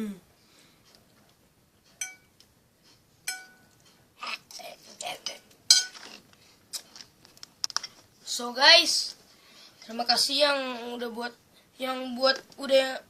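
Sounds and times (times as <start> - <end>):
cutlery clinking on a plate: 2.0 - 2.3, 3.3 - 3.7, 5.7 - 6.2
cutlery scraping a plate: 5.2 - 6.2.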